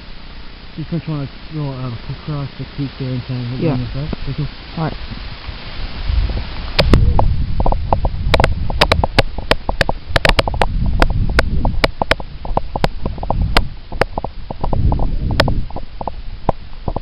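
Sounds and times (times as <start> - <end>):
wind on microphone: 1.4 - 17.0.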